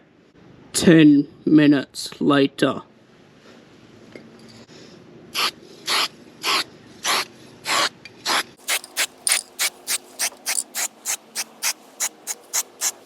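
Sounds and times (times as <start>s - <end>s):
spray can rattling when shaken: 8.6s - 13.0s.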